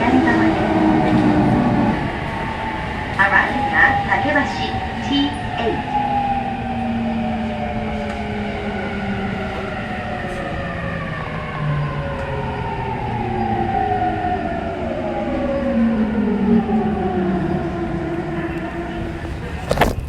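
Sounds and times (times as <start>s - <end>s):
wheel on rail running noise: 16.2s - 20.0s.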